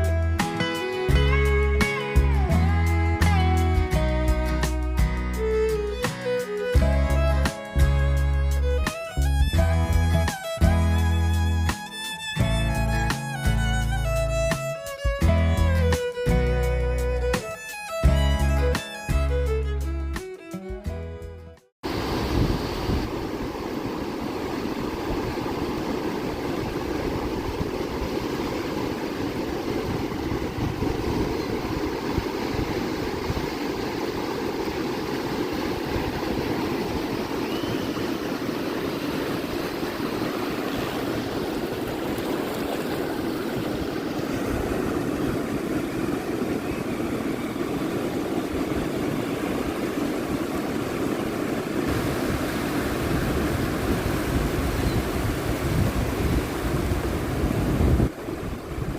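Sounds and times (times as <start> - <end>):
ocean surf rushing: 0.0 - 19.5, 21.8 - 58.9
wind buffeting microphone: 21.9 - 58.9.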